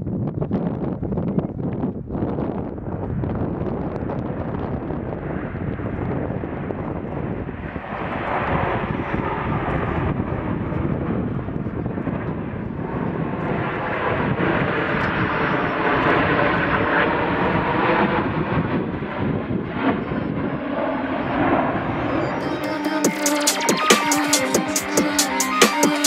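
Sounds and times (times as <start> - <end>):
aircraft engine flying past: 2.7 - 26.0.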